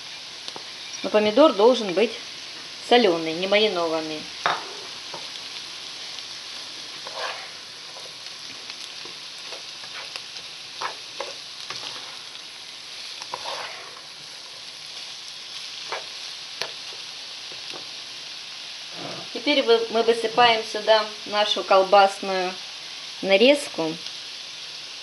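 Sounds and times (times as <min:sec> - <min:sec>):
vegetables sizzling in oil: 0:00.0 - 0:25.0
spatula scraping a pan: 0:04.4 - 0:05.3, 0:06.9 - 0:17.0.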